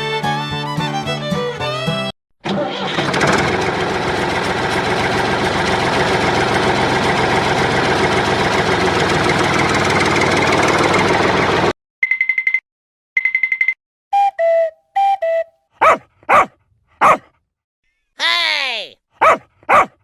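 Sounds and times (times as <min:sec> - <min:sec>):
tractor engine knocking: 0:02.8 - 0:11.7.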